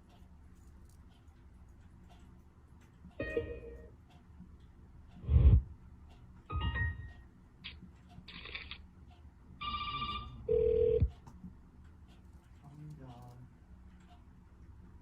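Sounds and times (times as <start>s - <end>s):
computer system chimes and beeps: 3.2s - 3.9s, 6.5s - 7.2s.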